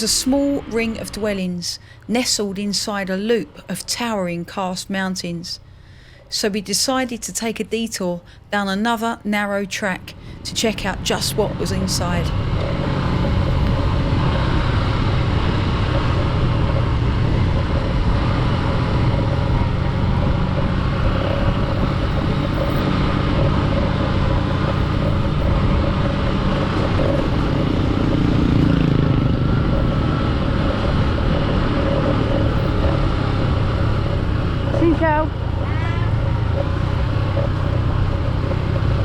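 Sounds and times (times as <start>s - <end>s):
motorcycle engine running: 10.0s - 39.0s
road noise hiss: 10.0s - 39.0s.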